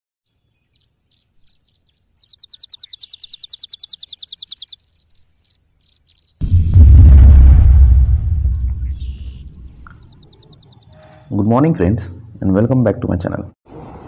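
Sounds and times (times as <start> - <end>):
bird trill: 0.3 - 6.4, 8.8 - 11.3
loud low rumble: 6.4 - 9.9.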